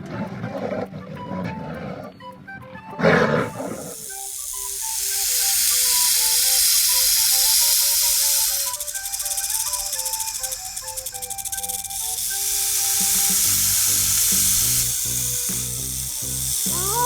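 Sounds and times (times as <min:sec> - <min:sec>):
background music: 0:00.0 - 0:17.0
long loud hiss: 0:03.5 - 0:17.0.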